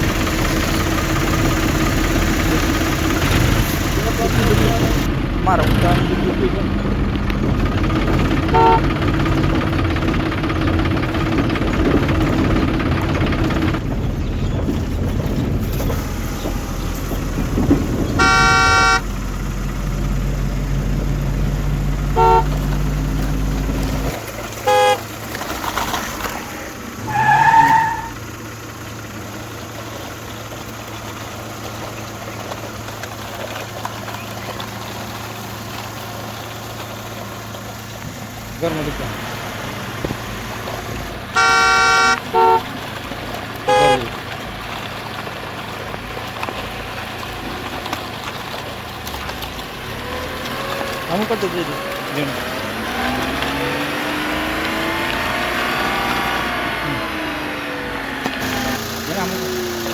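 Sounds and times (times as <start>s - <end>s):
motor noise: 0.0s - 59.9s
horn tooting: 2.4s - 10.6s, 17.6s - 19.2s, 21.7s - 25.1s, 41.3s - 43.0s, 43.6s - 44.2s.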